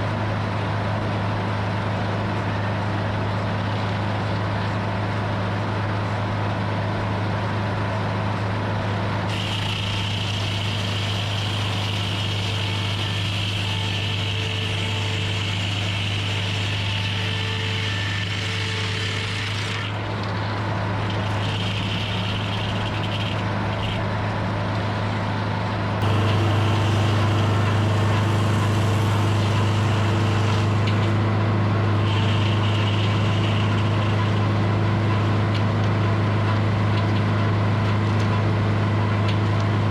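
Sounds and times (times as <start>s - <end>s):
sawmill engine hum: 0.0s - 39.9s
high saw whine: 9.3s - 24.0s, 26.0s - 34.7s.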